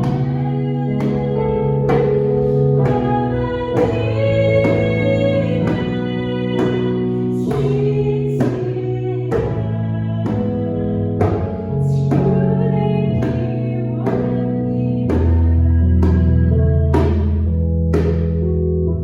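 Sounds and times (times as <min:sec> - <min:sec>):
worship song vocals: 0:00.0 - 0:17.1.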